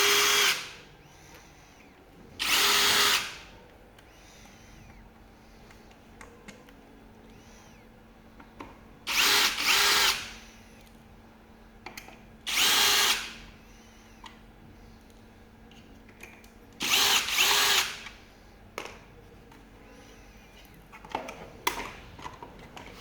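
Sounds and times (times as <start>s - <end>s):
drill-driver whining: 0.0s - 1.5s, 2.4s - 3.5s, 9.1s - 10.5s, 12.5s - 13.5s, 16.8s - 18.2s.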